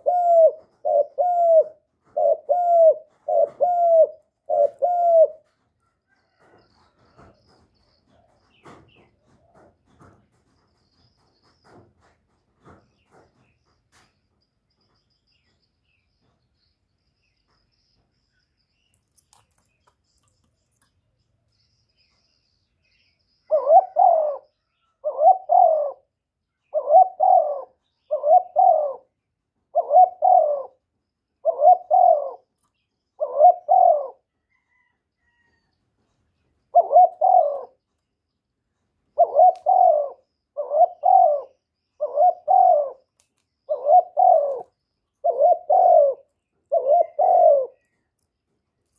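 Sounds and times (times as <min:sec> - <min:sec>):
dove cooing: 0:00.0 - 0:07.6, 0:23.5 - 0:32.5, 0:33.2 - 0:35.5, 0:36.7 - 0:37.8, 0:39.1 - 0:43.1, 0:43.7 - 0:48.0.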